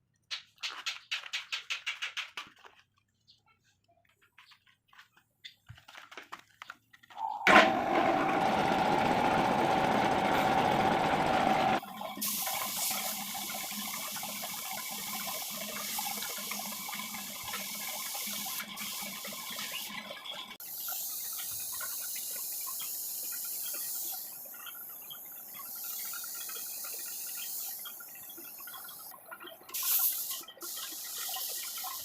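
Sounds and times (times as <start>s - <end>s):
machine humming: 7.2s - 11.8s.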